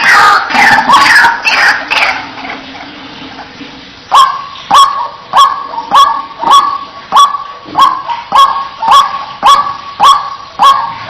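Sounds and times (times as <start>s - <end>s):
harsh bird calls: 0.0s - 2.4s.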